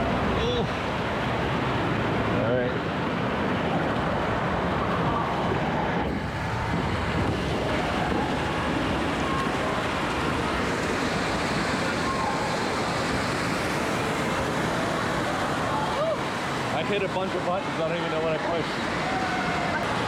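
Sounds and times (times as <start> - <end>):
rushing water: 0.0 - 20.0
crowd din: 14.1 - 20.0.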